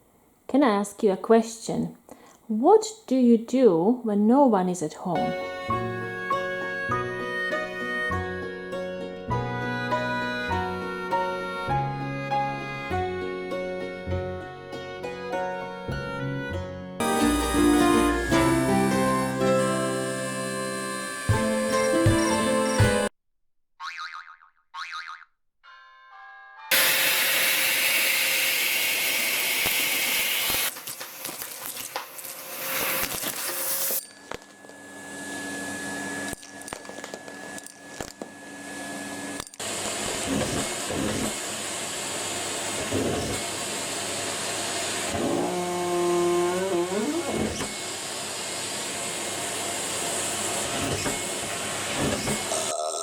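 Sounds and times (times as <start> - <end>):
vacuum cleaner motor running: 17.0 - 23.1, 26.7 - 32.0, 34.5 - 52.5.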